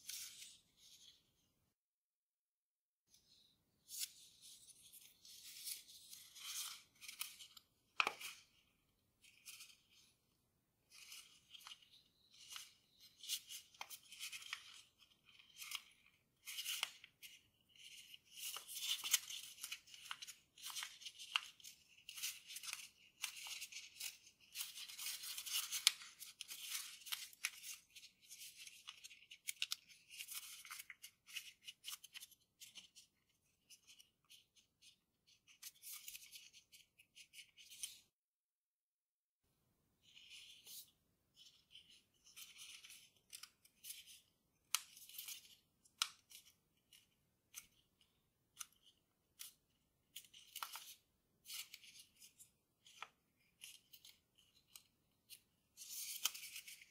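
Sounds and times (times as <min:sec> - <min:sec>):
paper rustling and crinkling: 0:03.9 - 0:08.6, 0:10.9 - 0:38.0, 0:48.6 - 0:56.9.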